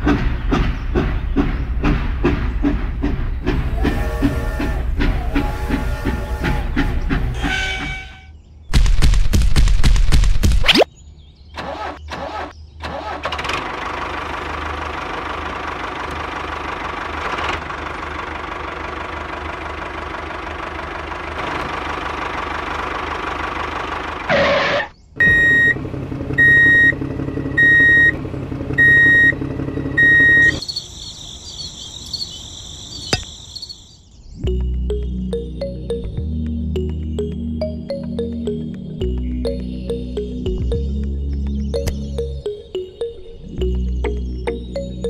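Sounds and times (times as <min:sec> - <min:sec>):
tractor engine running: 0:00.0 - 0:07.8, 0:12.9 - 0:30.7, 0:34.5 - 0:45.0
electronic beeps: 0:30.0 - 0:30.9.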